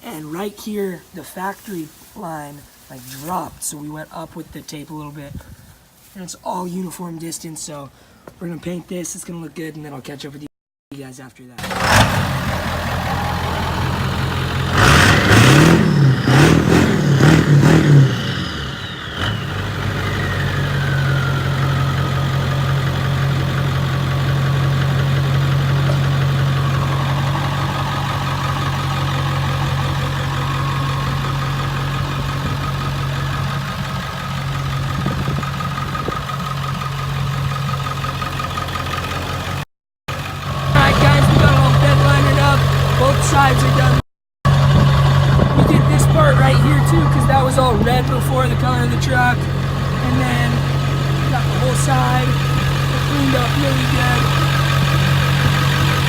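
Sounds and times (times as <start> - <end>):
engine revving and idling: 11.6 - 56.0
high whine: 12.2 - 35.4, 44.5 - 56.0.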